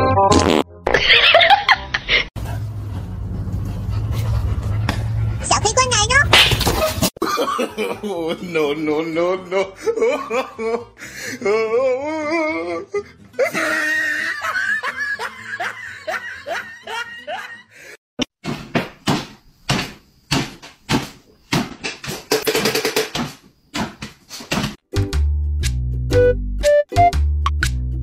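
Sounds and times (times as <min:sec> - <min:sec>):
girl laughing: 0:13.4 - 0:17.7.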